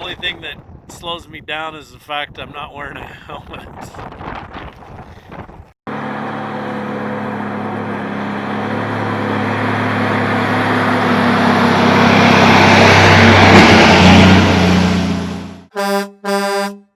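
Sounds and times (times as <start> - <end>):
road and wind noise: 0.0 - 15.7
vehicle engine running: 5.9 - 13.4.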